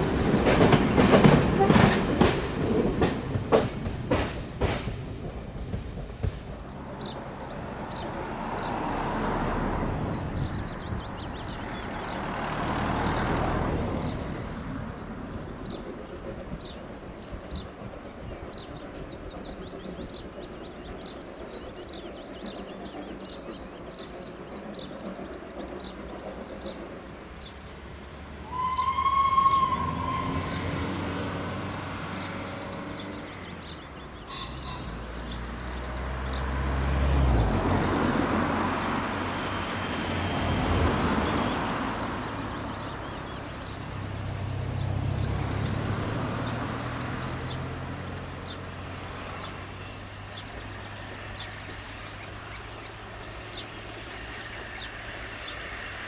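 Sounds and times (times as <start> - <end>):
birds chirping: 0.0 - 56.0
train whistle: 28.4 - 30.8.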